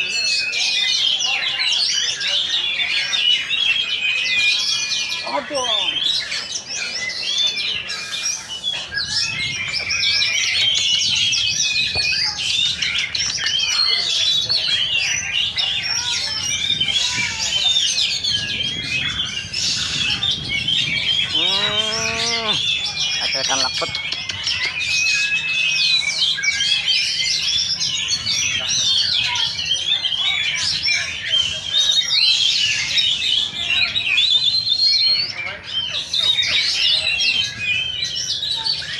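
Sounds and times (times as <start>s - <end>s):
birds whistling and chirping: 0.0s - 38.9s
songbirds singing: 0.0s - 38.9s.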